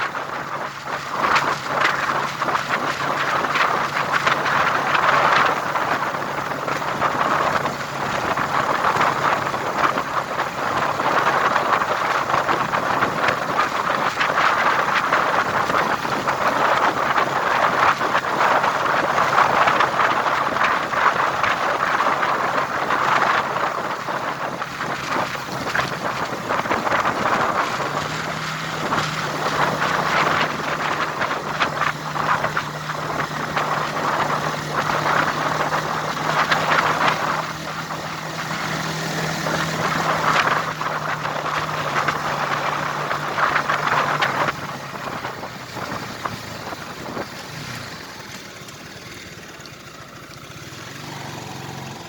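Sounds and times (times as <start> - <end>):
low vehicle engine tone: 0.0 - 52.0
wind rushing over microphone: 0.0 - 52.0.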